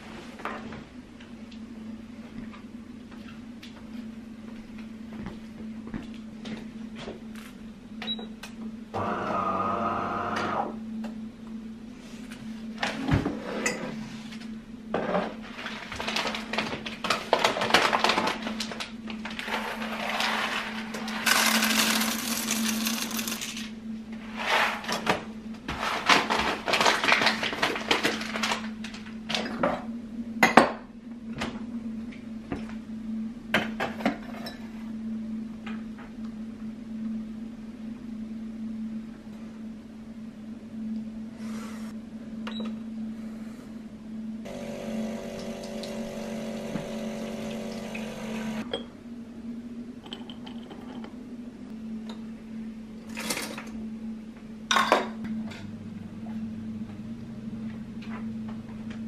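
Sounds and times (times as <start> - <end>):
steady low hum: 0.0 - 17.2, 18.4 - 26.7, 28.4 - 59.0
short buzzing machine: 21.2 - 23.6.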